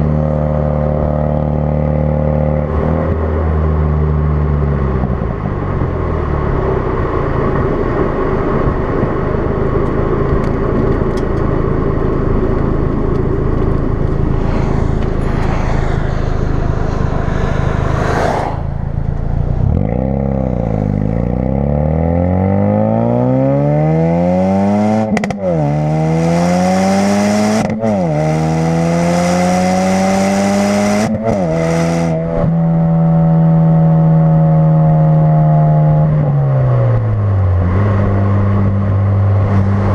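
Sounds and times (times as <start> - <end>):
car engine revving through gears: 13.0 - 36.0
exhaust burst on upshift: 13.7 - 22.6.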